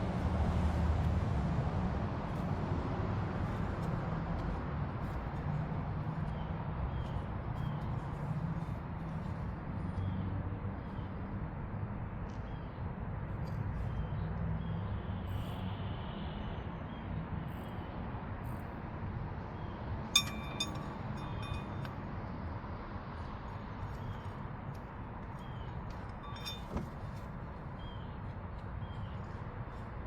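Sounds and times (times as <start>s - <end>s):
metal tool striking metal: 20.2s - 21.9s, 26.2s - 26.8s.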